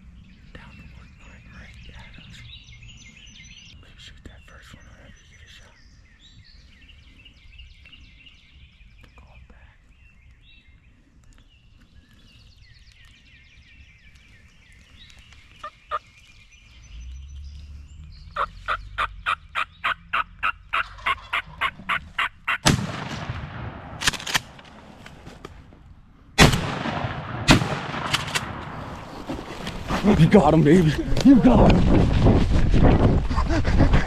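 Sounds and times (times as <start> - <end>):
turkey call notes: 18.4 - 22.6
shotgun firing: 22.6 - 24.6, 26.4 - 28.8.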